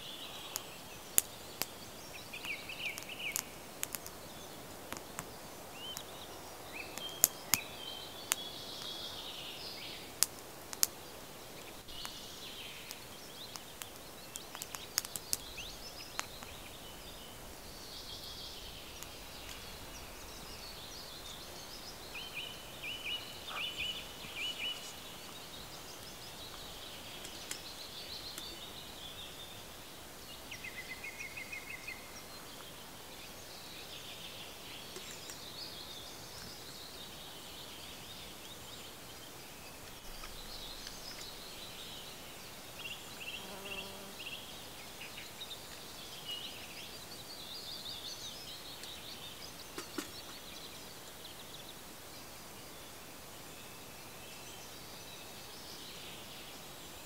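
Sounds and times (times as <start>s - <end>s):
birds chirping and trilling: 0.0s - 57.0s
steady background hiss: 0.0s - 57.0s.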